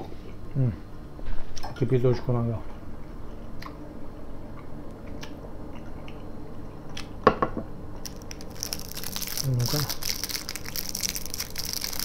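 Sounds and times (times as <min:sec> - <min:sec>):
chewing and mouth sounds: 0:04.5 - 0:06.3
candy wrapper crinkling: 0:08.0 - 0:12.0.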